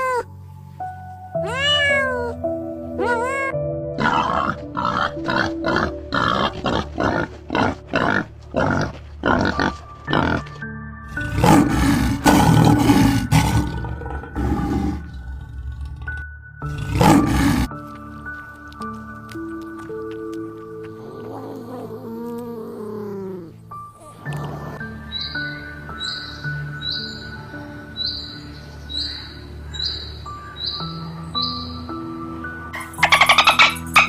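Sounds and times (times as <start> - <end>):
background music: 0.0 - 34.0
large animal grunting: 4.0 - 10.5, 11.1 - 17.7, 20.9 - 25.0.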